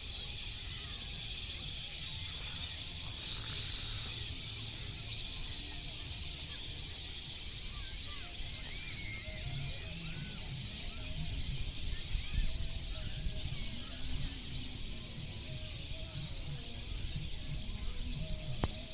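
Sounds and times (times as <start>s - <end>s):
steady high hiss: 0.0s - 10.2s
birds chirping: 0.0s - 18.9s.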